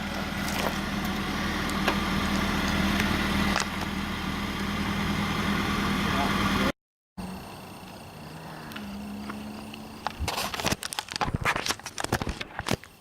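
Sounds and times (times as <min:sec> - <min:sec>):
vehicle engine idling: 0:00.0 - 0:10.3.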